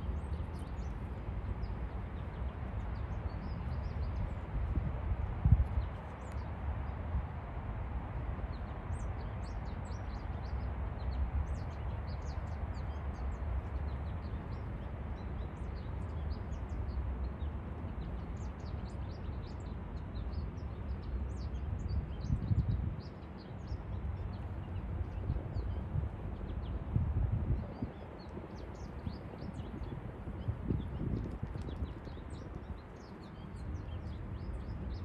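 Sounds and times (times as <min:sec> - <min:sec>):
small birds chirping: 0:27.6 - 0:35.0.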